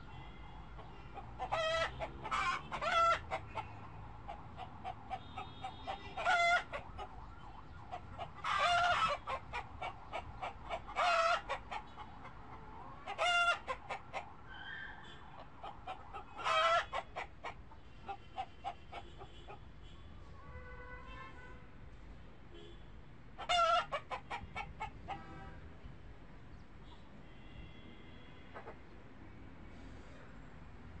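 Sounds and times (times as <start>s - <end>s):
chickens clucking: 0.8s - 14.4s, 15.3s - 19.6s, 23.4s - 25.3s
chickens calling: 0.8s - 19.6s, 23.4s - 25.3s.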